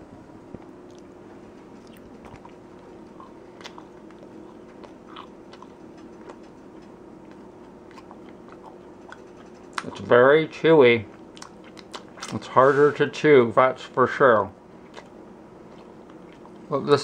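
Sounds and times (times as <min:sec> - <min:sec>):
soft clicks of chewing: 0:00.6 - 0:01.1, 0:01.7 - 0:10.1, 0:11.1 - 0:12.4.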